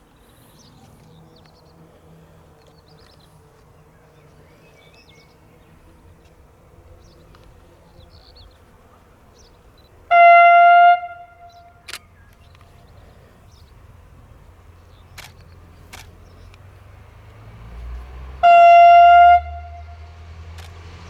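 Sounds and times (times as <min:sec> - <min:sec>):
steam whistle blast: 0:10.1 - 0:11.5, 0:18.4 - 0:20.1.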